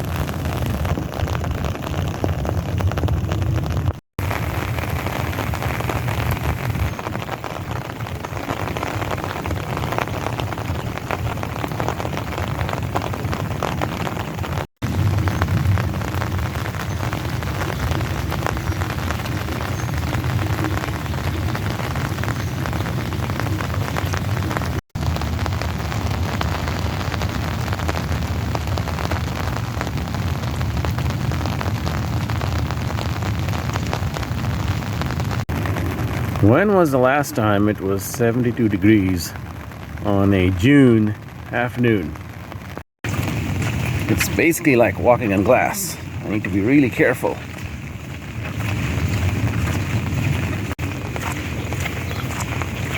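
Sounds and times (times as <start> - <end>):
heavy rain hiss: 35.0 - 52.9
steady low rumble: 35.1 - 52.9.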